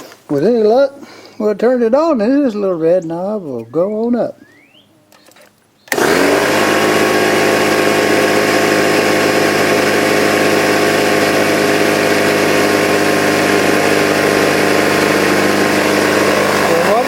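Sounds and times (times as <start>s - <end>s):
air compressor running: 5.9s - 17.0s.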